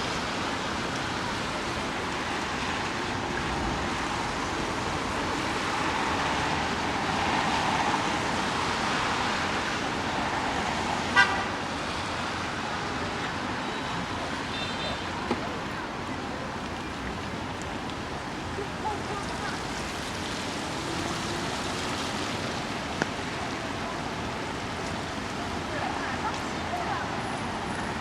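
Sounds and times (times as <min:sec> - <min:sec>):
rain: 0:00.0 - 0:28.0
traffic on a wet street: 0:00.0 - 0:28.0
vehicle horn toot: 0:11.2 - 0:11.5, 0:13.7 - 0:15.2.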